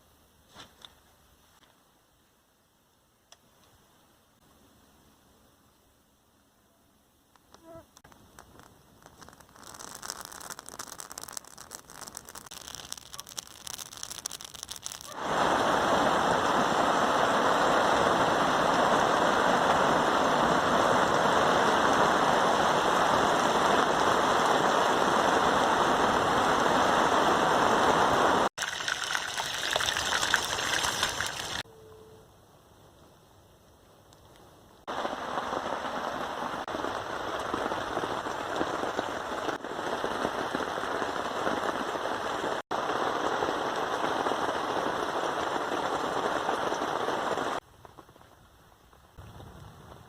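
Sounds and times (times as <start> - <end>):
light rain pattering: 7.0 - 31.6, 33.6 - 50.0
heavy rain hissing: 9.2 - 31.6, 34.9 - 47.6.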